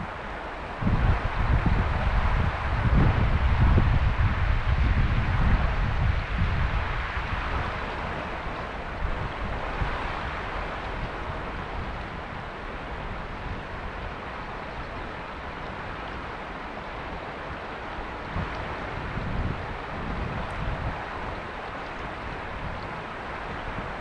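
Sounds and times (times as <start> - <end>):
river flowing: 0.0 - 24.0
wind rumble on microphone: 0.0 - 24.0.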